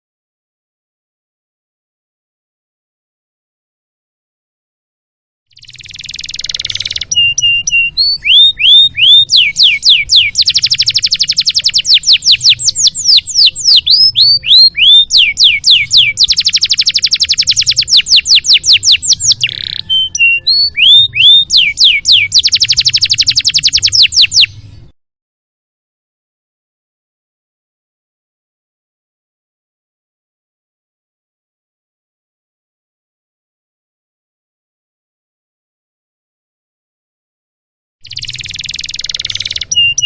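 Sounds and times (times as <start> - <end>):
canary singing: 5.5 - 24.9, 38.0 - 40.0.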